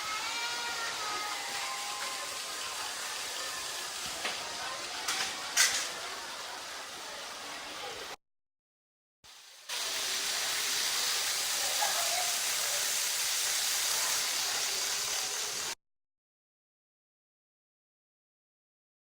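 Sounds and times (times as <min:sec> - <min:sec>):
hissing room noise: 0:00.0 - 0:08.2, 0:09.3 - 0:15.8
model trains whirring: 0:09.7 - 0:15.8.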